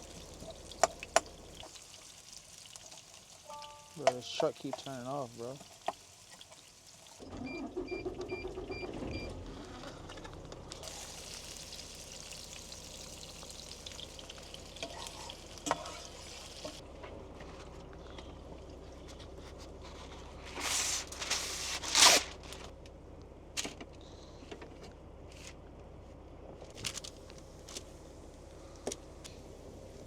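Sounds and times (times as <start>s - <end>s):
food sizzling in a pan: 1.5s - 7.2s, 10.8s - 16.8s
cookware clattering and scraping: 14.8s - 16.2s.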